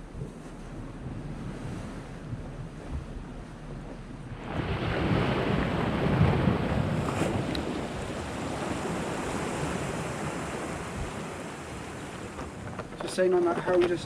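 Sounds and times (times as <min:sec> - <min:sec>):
wind on microphone: 0:00.0 - 0:14.0
sea washing against rocks: 0:04.2 - 0:14.0.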